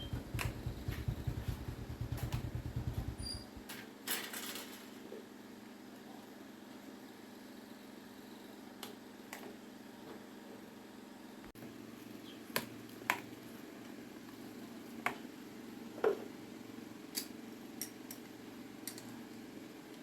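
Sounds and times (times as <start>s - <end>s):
steady low hum: 0.0s - 3.7s
small parts clicking and tapping: 17.1s - 19.2s.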